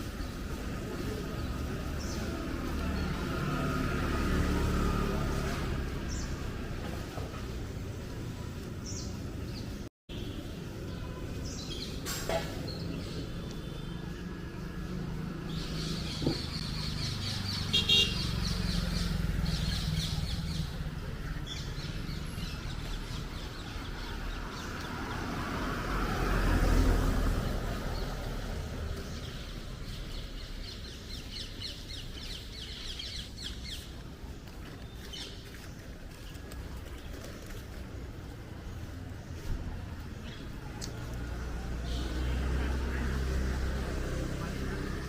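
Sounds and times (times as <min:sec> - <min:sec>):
birds chirping: 0:00.0 - 0:45.0
low traffic hum: 0:00.0 - 0:45.0
vehicle passing close: 0:01.2 - 0:08.2, 0:14.2 - 0:30.4.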